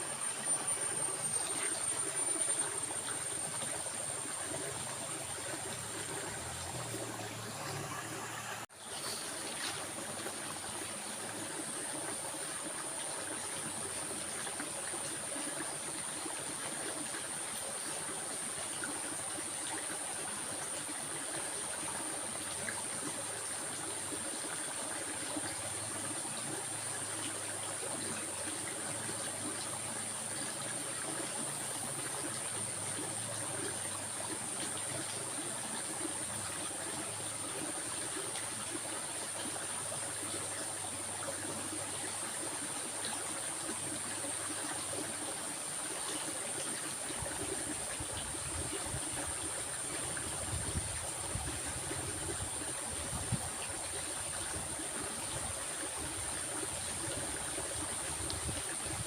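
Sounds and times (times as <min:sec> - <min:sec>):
stream water trickling: 0:00.0 - 0:59.0.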